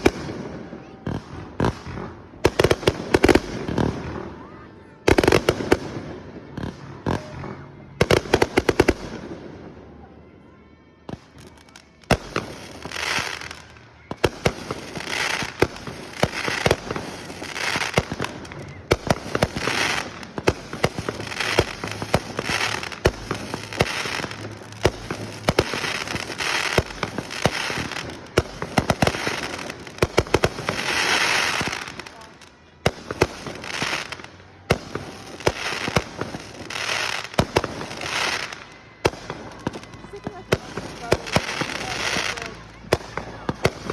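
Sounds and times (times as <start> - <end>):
fireworks bangs: 0.0 - 9.9, 11.1 - 43.9
fireworks hissing: 11.5 - 43.9.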